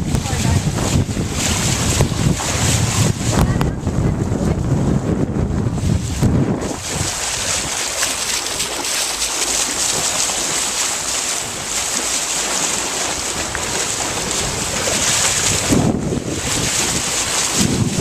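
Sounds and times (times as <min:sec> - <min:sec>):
water rushing along boat hull: 0:00.0 - 0:18.0
wind buffeting microphone: 0:00.0 - 0:18.0.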